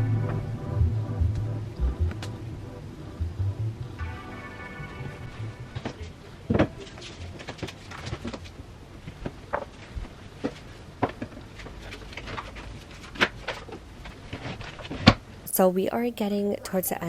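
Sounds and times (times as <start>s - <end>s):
household things clicking and knocking: 5.8s - 15.3s.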